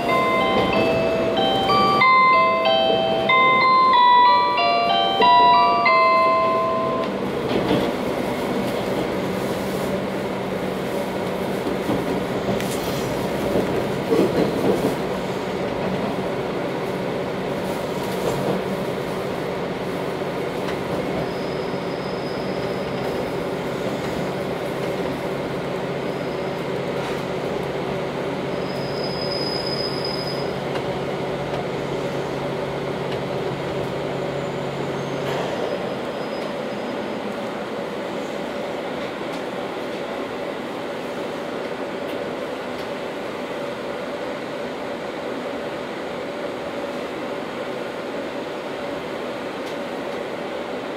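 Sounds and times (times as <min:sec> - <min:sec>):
electronic announcement chime: 0:00.0 - 0:07.1
train wheels rumbling on rails: 0:00.0 - 0:50.9.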